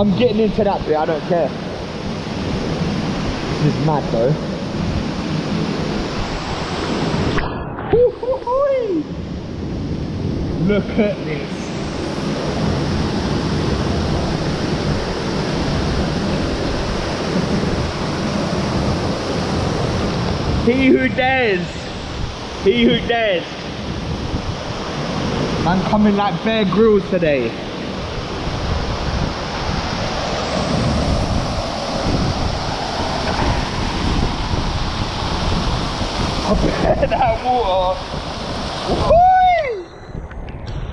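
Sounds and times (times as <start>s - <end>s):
wind buffeting microphone: 0.0s - 40.9s
waterfall rushing: 10.5s - 39.8s.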